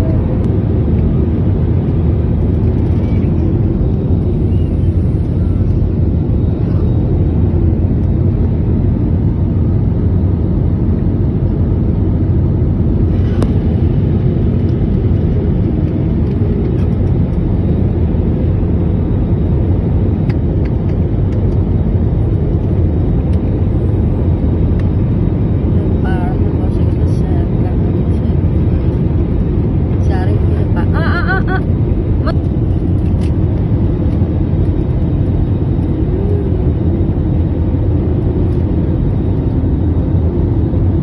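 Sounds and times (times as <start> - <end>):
moving vehicle rumble: 0.0 - 41.0.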